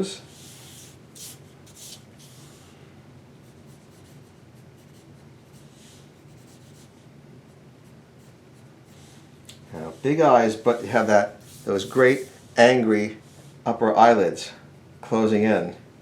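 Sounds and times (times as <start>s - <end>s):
drawing strokes on paper: 0.3s - 2.7s, 9.9s - 12.6s.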